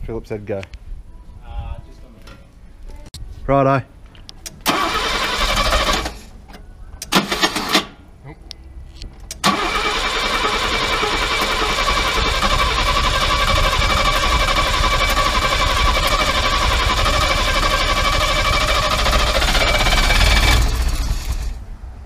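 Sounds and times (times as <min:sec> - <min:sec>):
car engine starting and running: 0:04.4 - 0:06.3, 0:07.0 - 0:08.0, 0:09.1 - 0:22.0.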